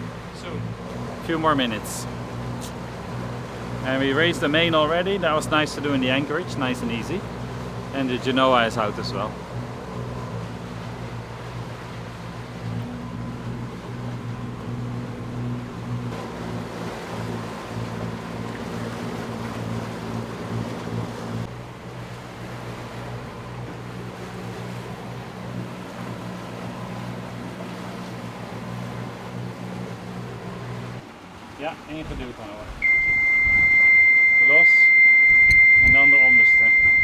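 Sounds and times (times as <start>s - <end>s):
diesel boat engine running: 0.0s - 37.0s
water rushing past hulls: 0.0s - 37.0s
wind noise: 32.1s - 33.9s, 35.2s - 36.1s.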